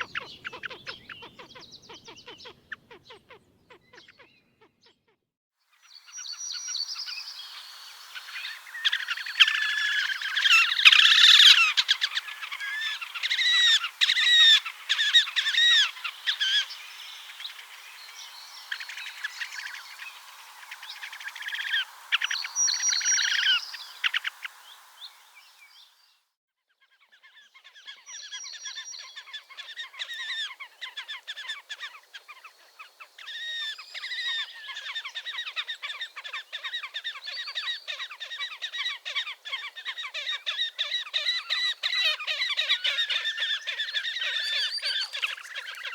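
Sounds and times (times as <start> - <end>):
grebes trilling calls: 6.8 - 25.6, 33.2 - 45.9.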